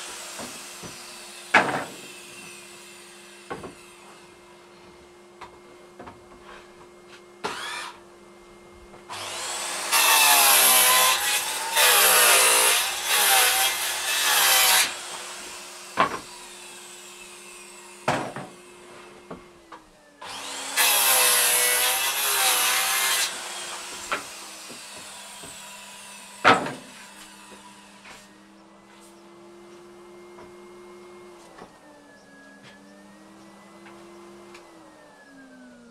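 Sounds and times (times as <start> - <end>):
circular saw cutting wood: 0.0 - 4.4, 7.4 - 8.0, 9.1 - 19.2, 20.2 - 28.6.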